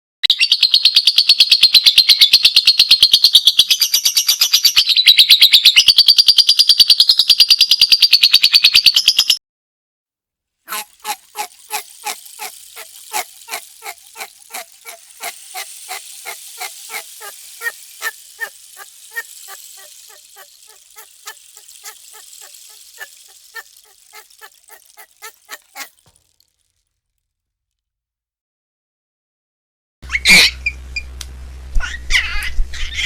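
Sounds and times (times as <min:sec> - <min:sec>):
bird calling rapidly: 0:10.7 - 0:26.1
faint high hiss: 0:10.7 - 0:26.2.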